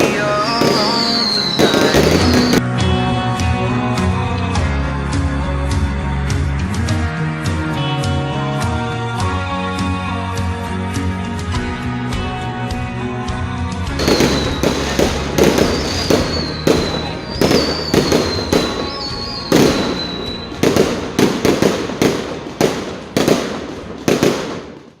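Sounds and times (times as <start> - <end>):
fireworks bangs: 0.0 - 2.6, 14.0 - 25.0
high wavering whistle: 0.0 - 2.6, 14.0 - 20.8
music: 0.0 - 24.8.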